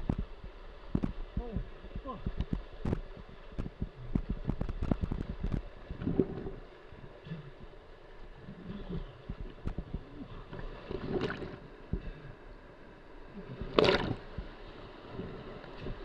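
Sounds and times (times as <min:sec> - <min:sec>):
wind on microphone: 0:00.0 - 0:06.6, 0:08.4 - 0:12.2, 0:13.5 - 0:16.0
kayak paddle splashing in water: 0:08.8 - 0:11.6, 0:13.6 - 0:14.5.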